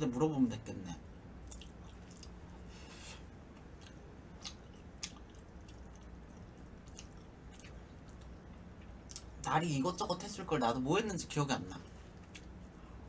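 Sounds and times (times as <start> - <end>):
low hum: 0.0 - 13.0
person chewing and lip smacks: 1.4 - 2.5, 3.5 - 9.5, 12.1 - 12.8.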